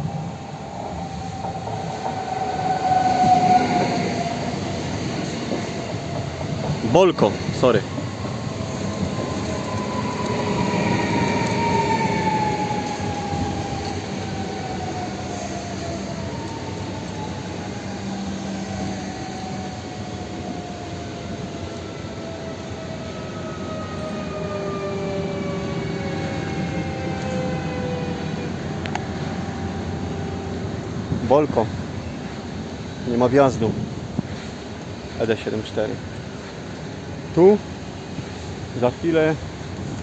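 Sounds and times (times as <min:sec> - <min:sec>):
train whine falling in pitch: 0:00.0 - 0:33.1
passenger train rolling by: 0:00.0 - 0:40.0.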